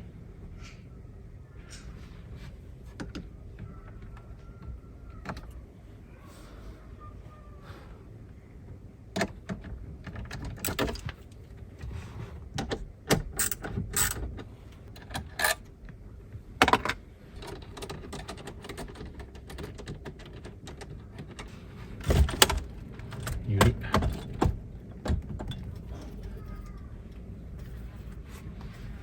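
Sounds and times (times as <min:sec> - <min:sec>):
plastic panels clicking and knocking: 0:02.9 - 0:05.7, 0:08.6 - 0:11.8, 0:12.4 - 0:26.5.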